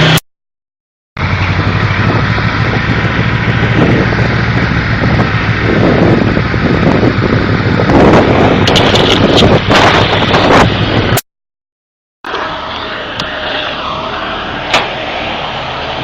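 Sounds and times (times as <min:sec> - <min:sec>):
truck diesel engine running: 0:01.2 - 0:11.2, 0:12.2 - 0:16.0
wind buffeting microphone: 0:01.2 - 0:11.2.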